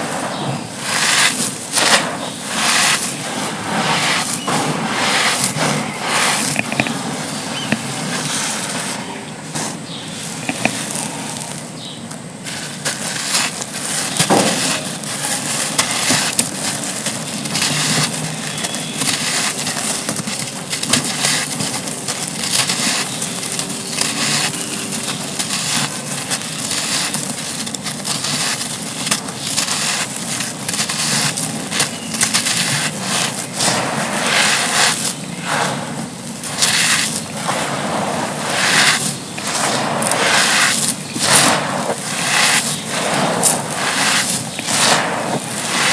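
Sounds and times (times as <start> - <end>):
gritty slabs crumbling: 12.5 - 45.9.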